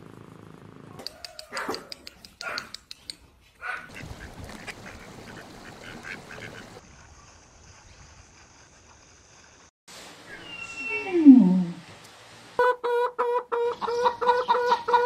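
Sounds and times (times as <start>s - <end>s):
faint steady hiss: 8.4s - 12.6s.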